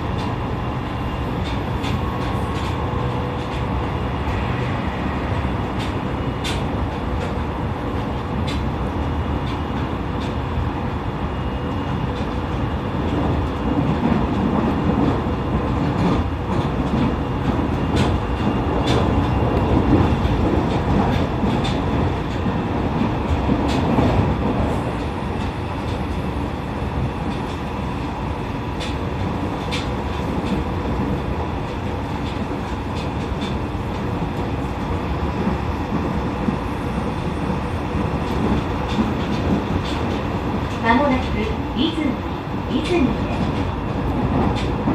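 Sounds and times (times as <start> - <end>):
train wheels rumbling on rail: 0.0 - 44.9
clicks from rail joints: 1.4 - 3.9, 5.6 - 7.4, 8.4 - 8.7, 28.8 - 36.6, 42.8 - 44.9.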